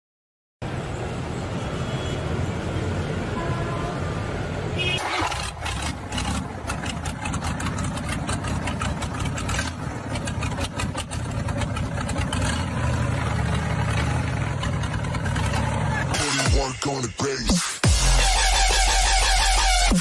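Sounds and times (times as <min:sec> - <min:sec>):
vehicle engine rumbling: 0:00.6 - 0:17.3.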